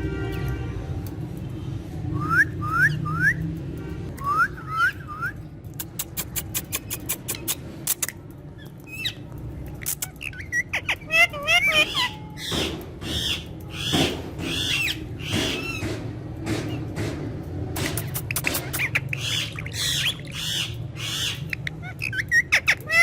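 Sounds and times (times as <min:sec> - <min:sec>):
parrot clicking: 0:05.7 - 0:10.6, 0:17.8 - 0:20.4.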